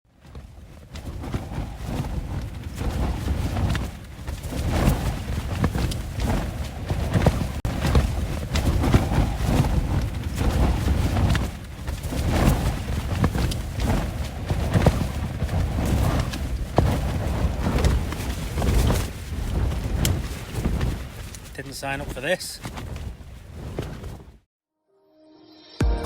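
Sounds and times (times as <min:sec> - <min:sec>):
wind buffeting microphone: 0:01.0 - 0:21.5.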